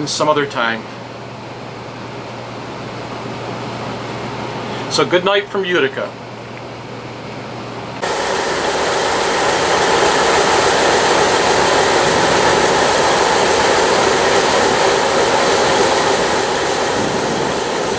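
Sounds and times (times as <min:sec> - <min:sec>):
train wheels rolling: 0:08.0 - 0:17.9.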